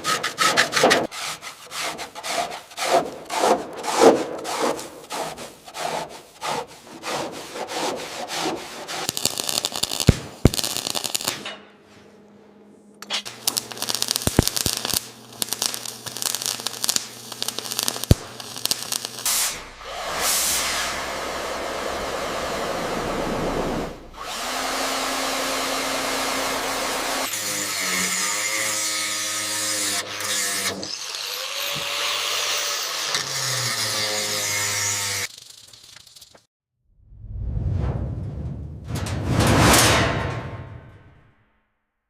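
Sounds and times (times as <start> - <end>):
power tools running: 13.3 - 27.5.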